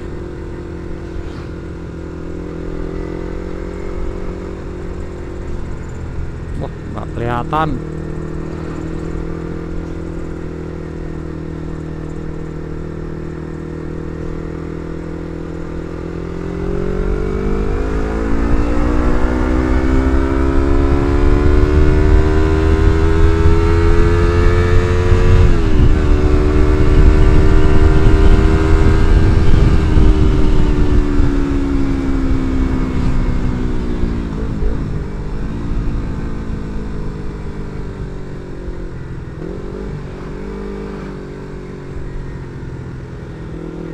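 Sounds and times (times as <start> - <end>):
motorcycle engine revving: 0.0 - 43.9
gear shift: 8.0 - 10.5.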